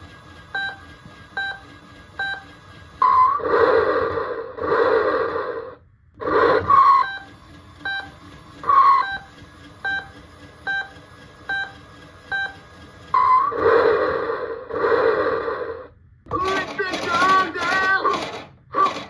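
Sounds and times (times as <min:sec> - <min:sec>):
toy noisy bursts with squawk: 0:16.5 - 0:19.0.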